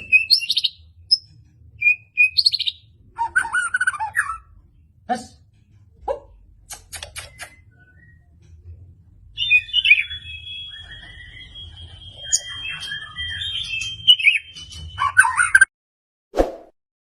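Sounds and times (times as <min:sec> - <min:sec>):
bird singing whistled notes: 0:00.0 - 0:04.4, 0:07.2 - 0:08.4, 0:09.3 - 0:15.7.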